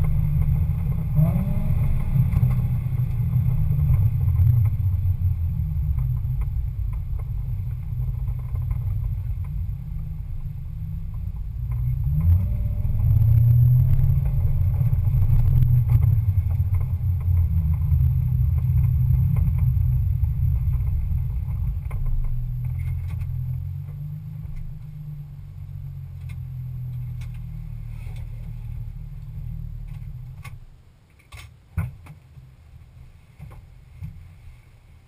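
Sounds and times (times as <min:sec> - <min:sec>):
car engine idling: 0:00.0 - 0:31.0
sharp clicks and knocks: 0:01.8 - 0:25.0, 0:29.8 - 0:32.5.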